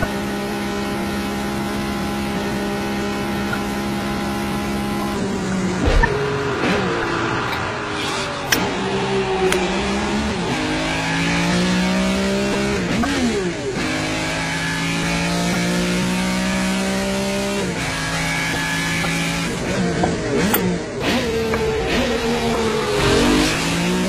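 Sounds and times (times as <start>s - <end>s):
car engine revving at speed: 0.0s - 24.0s.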